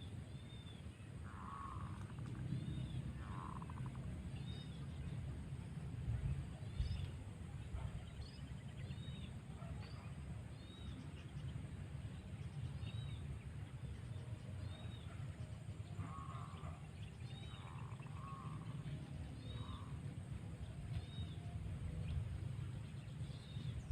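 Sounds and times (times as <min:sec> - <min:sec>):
steady low rumble: 0:00.0 - 0:23.9
lower bird call notes: 0:00.4 - 0:04.8, 0:14.6 - 0:22.3.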